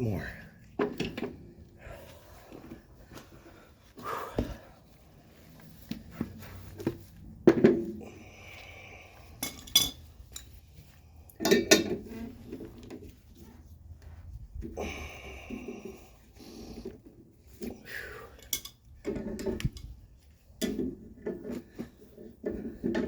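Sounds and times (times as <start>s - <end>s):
metal parts and tools clanking: 9.4s - 10.6s, 11.4s - 12.9s, 18.4s - 20.0s.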